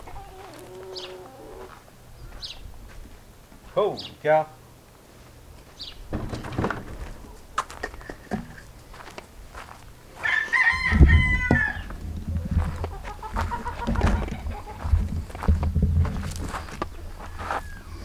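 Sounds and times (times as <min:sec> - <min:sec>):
rooster crowing: 0:00.0 - 0:01.8, 0:10.2 - 0:15.0
chickens calling: 0:00.0 - 0:18.0
rustling knocks: 0:06.0 - 0:08.8, 0:10.7 - 0:17.6.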